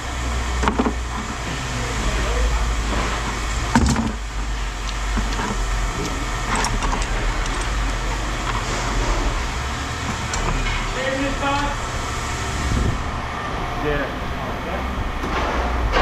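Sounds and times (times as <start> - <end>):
engine idling: 0.0 - 16.0
scrap metal clinking: 0.6 - 11.9.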